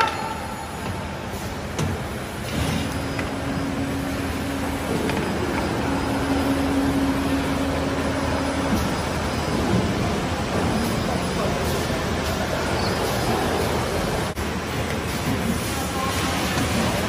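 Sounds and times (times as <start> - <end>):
mechanical noise: 0.0 - 17.0
steady motor tone: 2.9 - 10.7.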